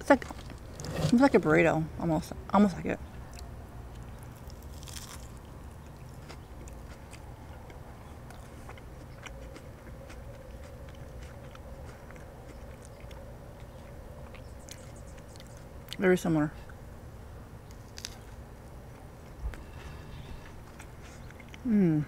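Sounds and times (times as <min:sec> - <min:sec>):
person chewing: 0:03.3 - 0:16.0, 0:17.7 - 0:21.8.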